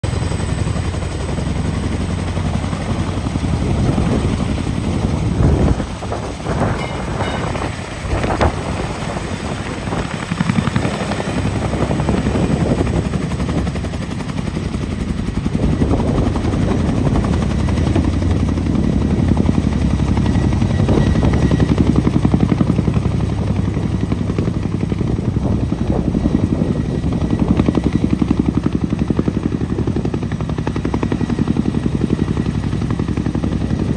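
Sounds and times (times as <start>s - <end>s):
helicopter rotor beat: 0.0s - 33.9s
turbine noise: 2.5s - 13.1s.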